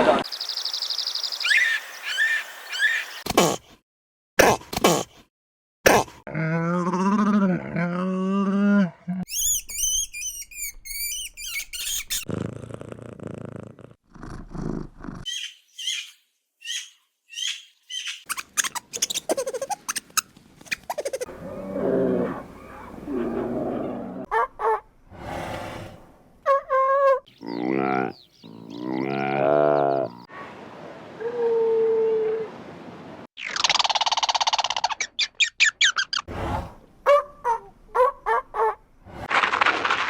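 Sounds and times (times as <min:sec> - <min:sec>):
high bird-like chirps: 0:09.3 - 0:12.2, 0:15.3 - 0:20.0
low wavering animal calls: 0:21.3 - 0:24.7.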